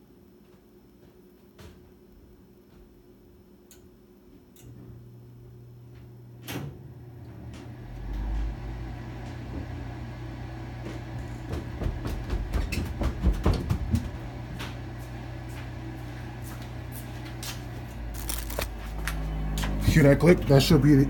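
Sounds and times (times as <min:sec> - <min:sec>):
inducer motor humming: 0:14.2 - 0:21.0.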